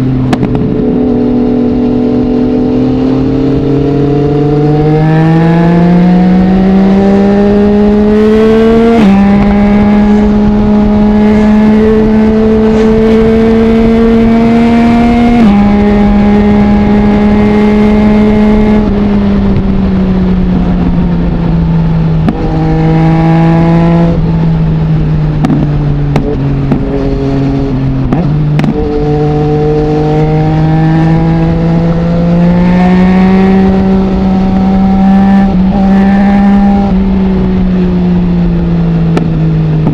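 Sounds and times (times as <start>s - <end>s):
motorcycle accelerating: 0.0s - 39.9s
exhaust pops: 0.3s - 0.8s, 25.3s - 27.1s, 28.0s - 28.9s.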